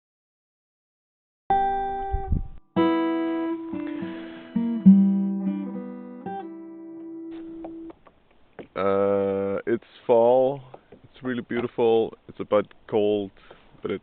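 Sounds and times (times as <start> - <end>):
acoustic guitar plucking: 1.5 - 8.0.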